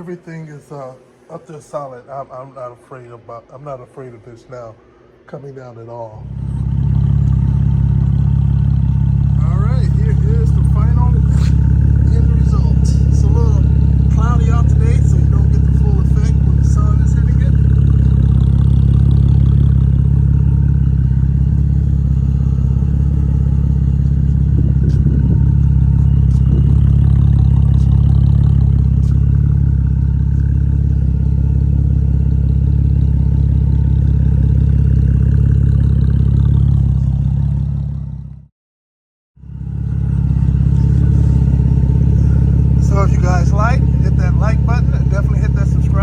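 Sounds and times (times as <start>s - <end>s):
car engine idling: 6.1s - 38.5s, 39.4s - 46.0s.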